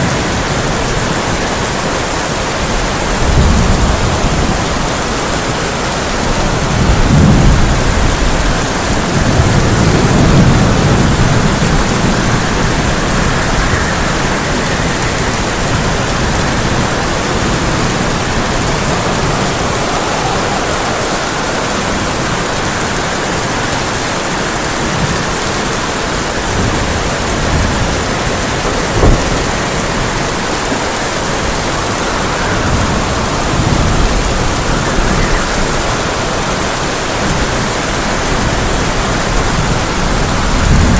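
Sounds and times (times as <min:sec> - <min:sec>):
heavy rain on a tin roof: 0:00.0 - 0:40.9
thunder rolling: 0:02.4 - 0:40.9
sharp thunder crack: 0:26.6 - 0:30.4.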